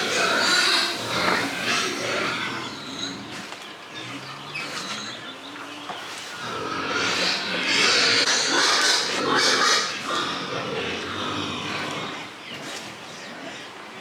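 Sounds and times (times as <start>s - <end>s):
pigs grunting: 0.0s - 5.2s, 6.3s - 13.6s
pigs squealing: 0.0s - 5.2s, 6.4s - 12.3s.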